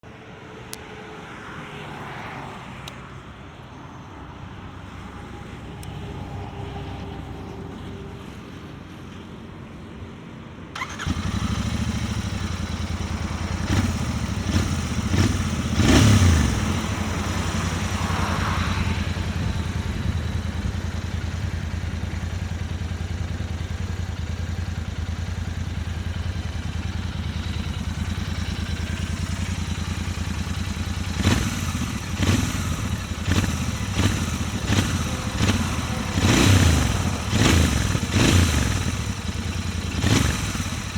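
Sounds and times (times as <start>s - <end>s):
motorcycle engine revving and idling: 10.8s - 40.9s.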